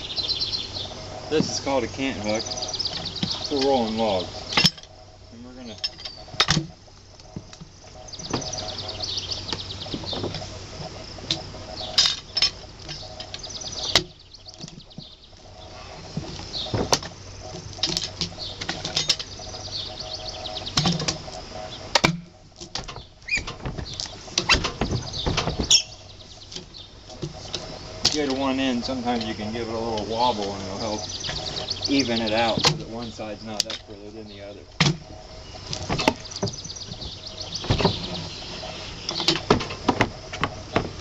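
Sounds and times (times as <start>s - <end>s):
birds chirping: 0.0s - 41.0s
knocks and clunks on log: 5.8s - 6.7s, 9.5s - 15.1s, 16.1s - 19.3s, 21.9s - 28.4s, 32.4s - 32.9s, 34.8s - 35.1s, 35.7s - 38.4s, 39.1s - 41.0s.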